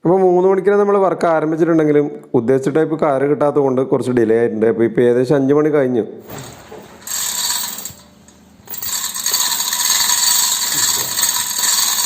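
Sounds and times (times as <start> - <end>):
chain hoist rattling: 7.0 - 12.0.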